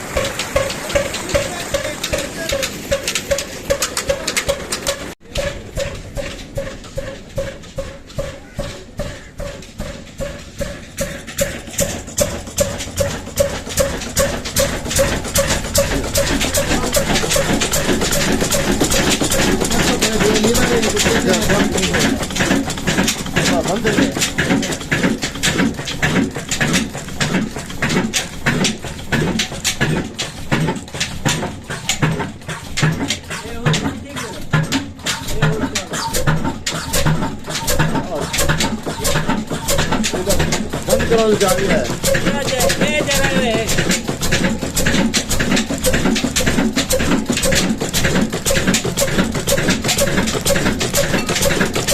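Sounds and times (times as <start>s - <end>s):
diesel engine running slowly: 0.0s - 51.9s.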